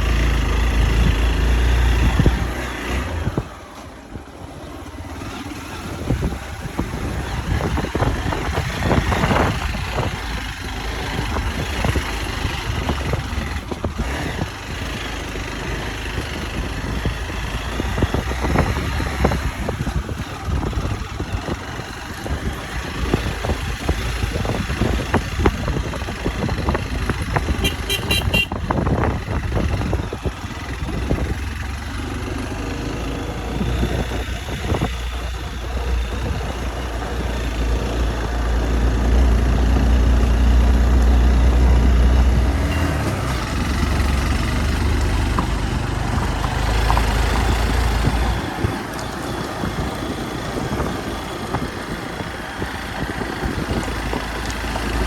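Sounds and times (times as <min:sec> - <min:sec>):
motorcycle engine running: 0:00.0 - 0:55.0
short horn beeps: 0:27.6 - 0:28.6.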